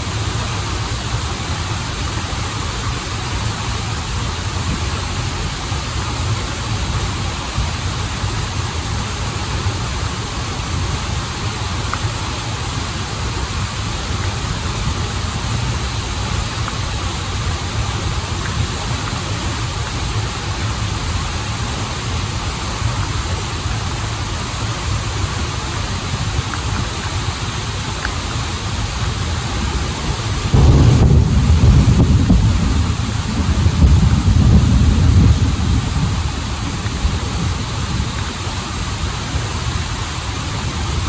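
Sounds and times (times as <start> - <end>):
water rushing in stream: 0.0 - 41.0
loud low rumble: 30.5 - 38.1.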